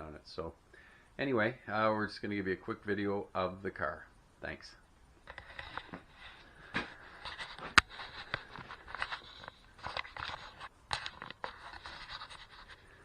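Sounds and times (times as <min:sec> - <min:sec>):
scrapes and clicks of handling: 0:05.2 - 0:13.0.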